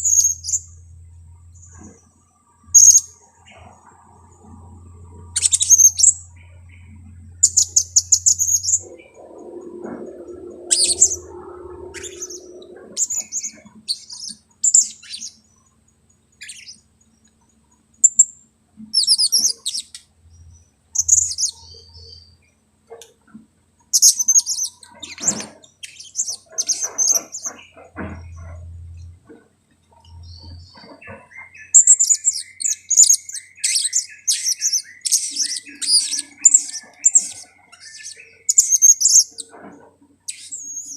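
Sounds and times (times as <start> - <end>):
low hum: 0.0 - 18.0, 24.0 - 40.9
parrots high-pitched chirps: 2.8 - 3.2, 5.2 - 6.2, 7.4 - 15.4, 16.4 - 16.8, 18.0 - 20.0, 21.0 - 22.2, 23.9 - 28.6, 30.3 - 39.6, 40.3 - 40.9.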